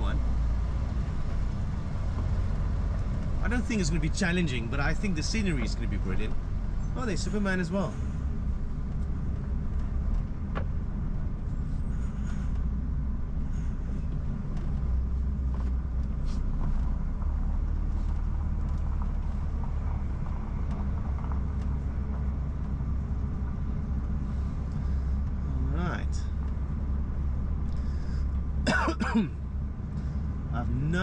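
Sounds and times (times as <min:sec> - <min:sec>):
diesel truck engine rumble: 0:00.0 - 0:31.0
faint clicks and rattles: 0:14.1 - 0:25.5.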